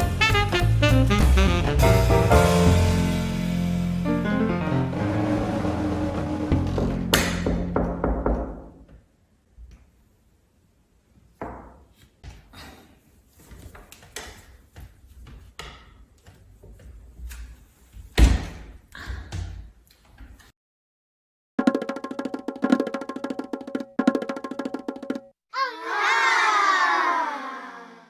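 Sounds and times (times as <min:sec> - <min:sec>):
music: 0:00.0 - 0:08.0, 0:21.6 - 0:25.3
knocks and thumps: 0:06.5 - 0:09.0.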